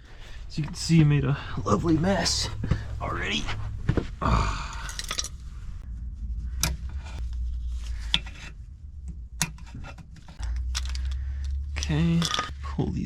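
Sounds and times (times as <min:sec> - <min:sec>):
low steady hum: 0:00.0 - 0:13.0
rubbing of metal parts: 0:09.4 - 0:12.8.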